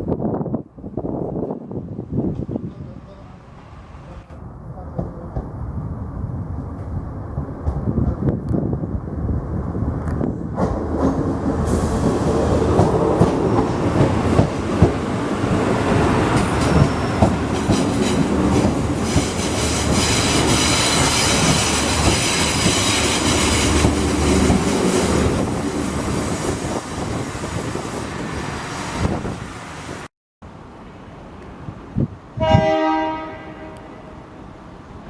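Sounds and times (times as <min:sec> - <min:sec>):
train wheels clicking over rail joints: 0:10.0 - 0:25.6
high squeal of wheels on rails: 0:16.3 - 0:25.2.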